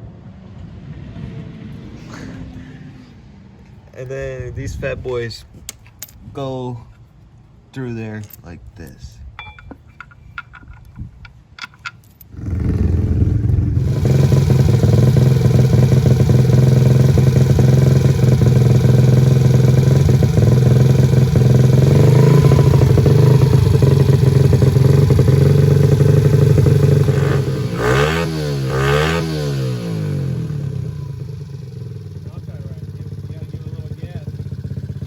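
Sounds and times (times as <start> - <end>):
pit bike engine running loud: 12.4 - 35.0.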